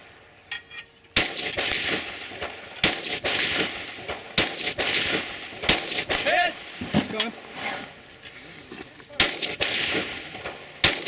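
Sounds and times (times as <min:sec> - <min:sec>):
rifle shots echoing: 0:01.2 - 0:06.9, 0:09.2 - 0:11.0.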